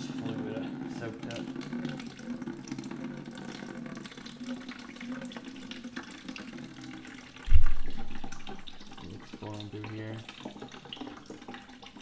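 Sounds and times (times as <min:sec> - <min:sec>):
liquid pouring into bucket: 0:00.0 - 0:12.0
low thump: 0:07.5 - 0:09.0.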